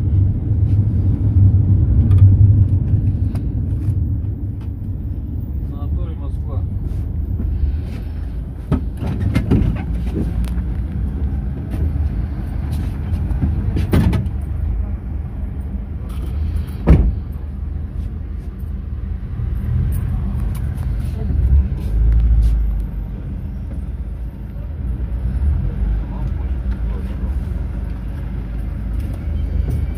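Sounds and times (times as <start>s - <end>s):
engine and road rumble: 0.0s - 29.9s
body knocks and rattles: 8.6s - 10.9s, 12.7s - 14.5s.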